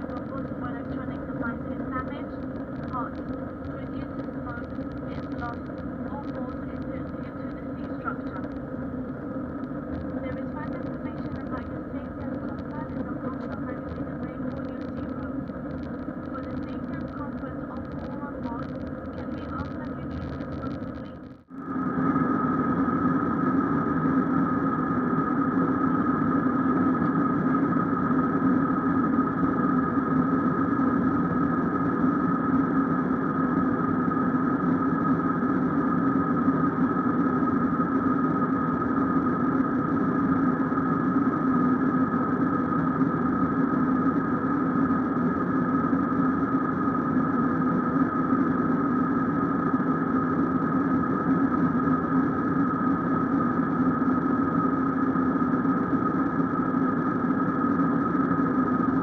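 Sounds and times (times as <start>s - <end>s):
airliner cabin engine drone: 0.0s - 59.0s.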